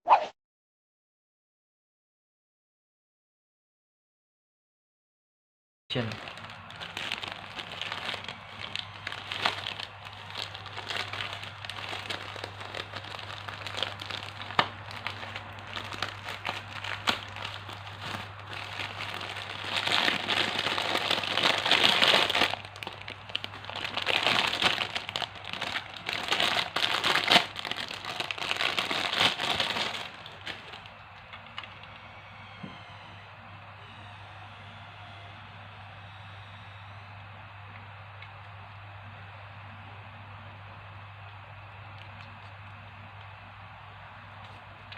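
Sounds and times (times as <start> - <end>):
toy packaging crinkling: 5.9 - 31.9
faint low hum: 5.9 - 44.9.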